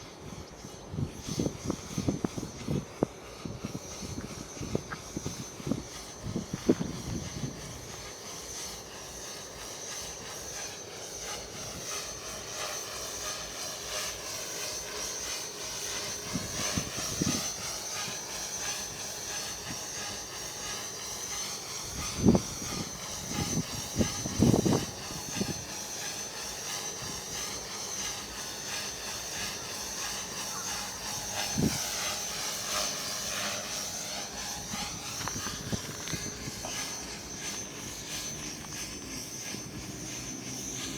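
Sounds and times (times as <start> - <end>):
model airplane motor whining: 0.0 - 40.9
wind gusts on microphone: 0.3 - 8.0, 16.2 - 17.6, 21.8 - 25.8, 31.3 - 32.0, 34.3 - 37.2.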